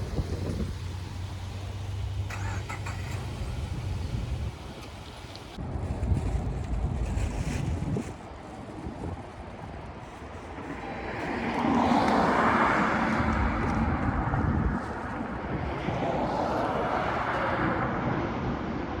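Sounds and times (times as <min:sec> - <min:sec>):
vehicle passing: 0:00.0 - 0:05.6, 0:10.7 - 0:18.7
wind buffeting microphone: 0:00.0 - 0:19.0.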